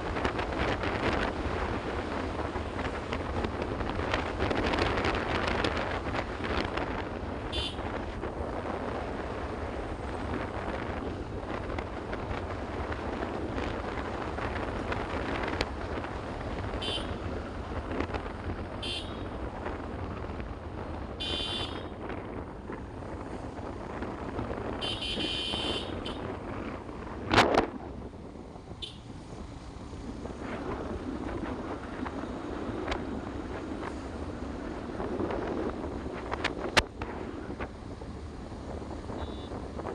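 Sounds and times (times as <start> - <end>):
motorcycle engine and road rumble: 0.0 - 39.9
wind buffeting microphone: 0.0 - 39.9
high-pitched horn beeps: 24.8 - 26.2.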